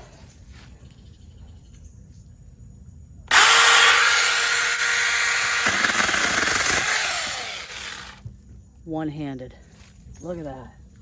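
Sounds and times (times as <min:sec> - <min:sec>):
mini chainsaw whining: 0:03.3 - 0:08.2.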